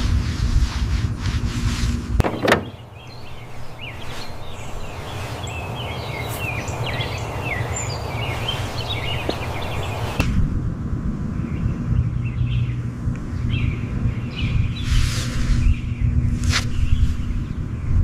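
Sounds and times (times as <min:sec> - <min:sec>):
low rumbling noise: 0:00.0 - 0:18.0
outdoor background hiss: 0:00.0 - 0:18.0
high bird chirps: 0:02.2 - 0:10.2.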